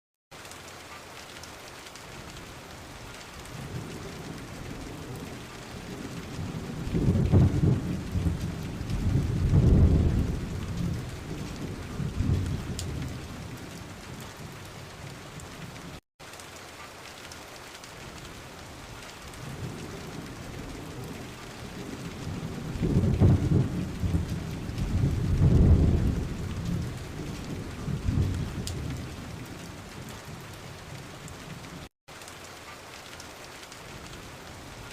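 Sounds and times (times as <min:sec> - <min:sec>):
steady rain: 0:00.3 - 0:34.9
thunder rumbling: 0:03.4 - 0:16.0, 0:18.9 - 0:31.9.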